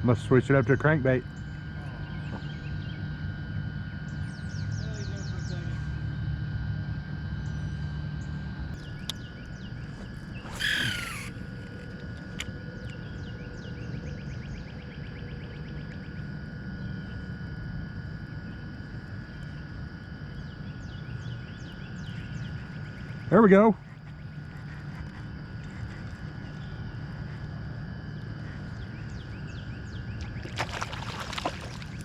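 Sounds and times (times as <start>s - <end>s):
birds chirping: 0.1s - 3.2s, 7.4s - 17.2s, 19.5s - 32.0s.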